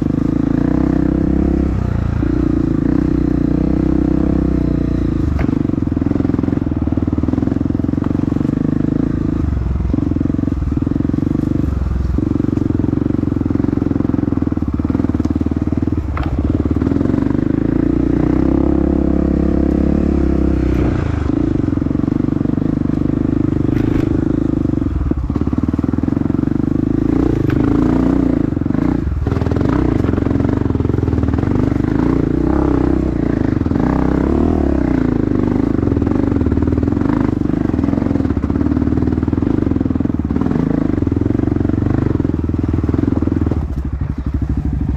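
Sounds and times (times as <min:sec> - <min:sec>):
dirt bike engine running hard: 0:00.0 - 0:44.9.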